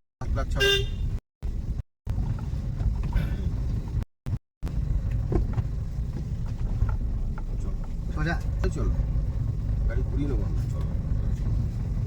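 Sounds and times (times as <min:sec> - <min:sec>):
car engine rumble: 0:00.2 - 0:12.0
road noise inside car: 0:00.2 - 0:12.0.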